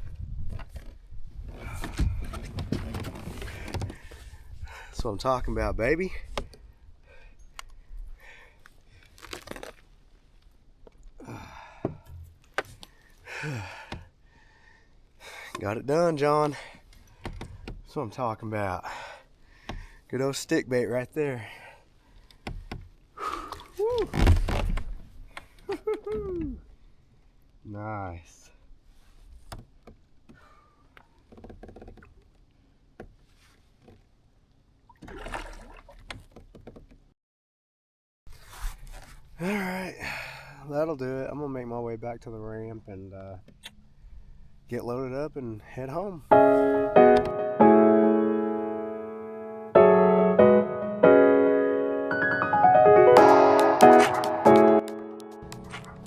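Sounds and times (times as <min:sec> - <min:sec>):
rustling and crackling handling: 0:08.6 - 0:11.2
person breathing out: 0:11.2 - 0:12.0.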